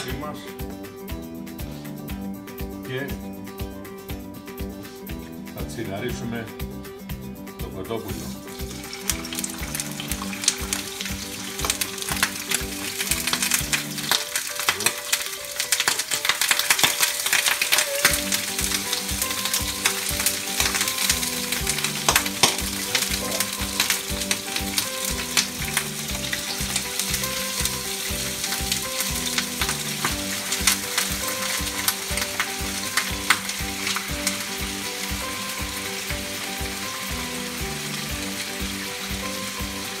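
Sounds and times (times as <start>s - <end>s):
background music with beat: 0.0s - 40.0s
chicken sizzling in frying pan: 8.1s - 40.0s.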